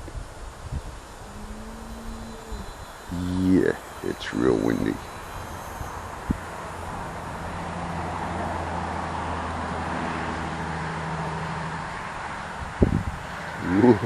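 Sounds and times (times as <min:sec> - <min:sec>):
wind rushing over microphone: 0:00.0 - 0:09.0, 0:11.9 - 0:14.0
low mechanical hum: 0:00.0 - 0:14.0.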